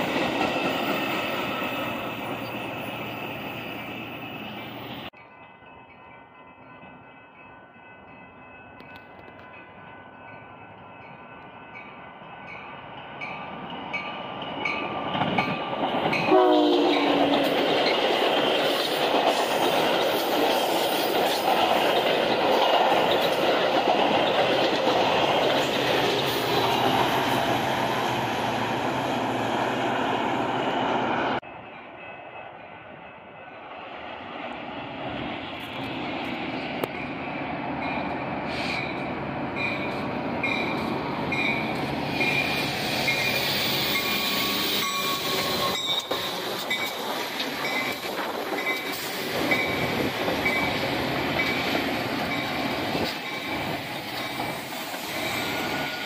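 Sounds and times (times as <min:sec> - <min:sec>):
train bell ringing: 0:00.0 - 0:18.2, 0:31.4 - 0:33.6, 0:36.8 - 0:54.6
passing train cars: 0:00.0 - 0:56.0
train horn: 0:16.2 - 0:17.6.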